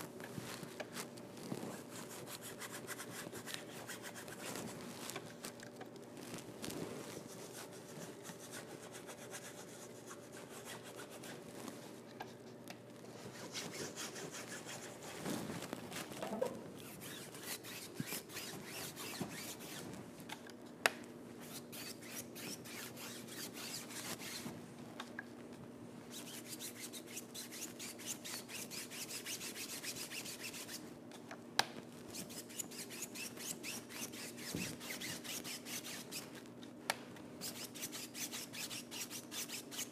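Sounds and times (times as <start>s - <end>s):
paintbrush scrubbing strokes: 7.0s - 11.9s, 13.2s - 15.6s.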